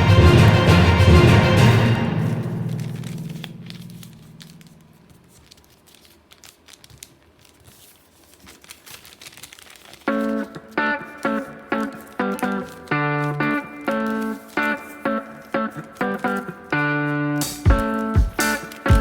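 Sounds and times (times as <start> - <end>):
background music: 0.0 - 4.8, 10.1 - 19.0
craft materials crinkling: 2.1 - 19.0.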